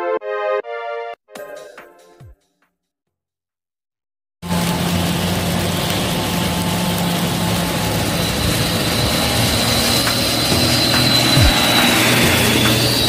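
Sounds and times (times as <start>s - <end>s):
heavy rain hissing: 4.4s - 13.0s
truck engine drone: 4.4s - 13.0s
wet road traffic: 4.4s - 13.0s.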